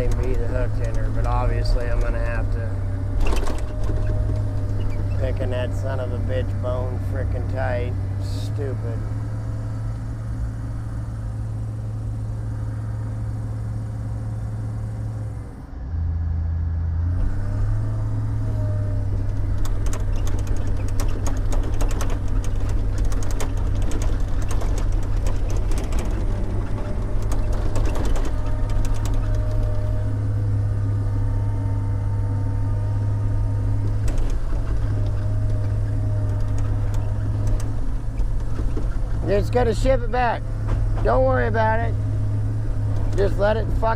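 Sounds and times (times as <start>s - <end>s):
knocks and clatter: 0.0s - 6.1s, 19.1s - 30.4s, 33.7s - 39.6s
heavy diesel engine running: 0.0s - 43.9s.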